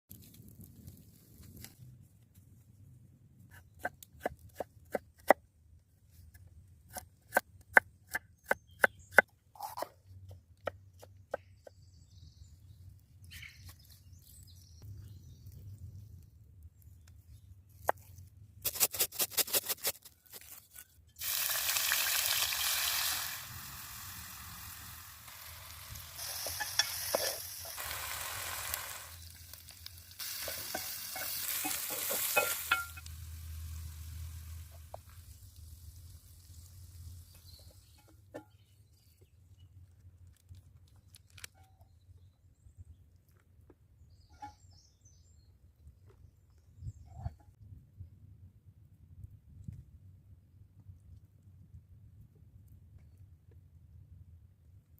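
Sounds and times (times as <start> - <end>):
food sizzling in hot oil: 21.2 - 37.0.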